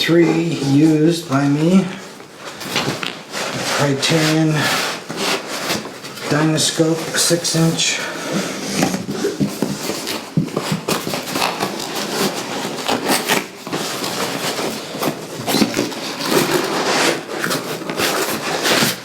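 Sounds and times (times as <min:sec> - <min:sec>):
packaging crackling and rustling: 0:08.8 - 0:19.0.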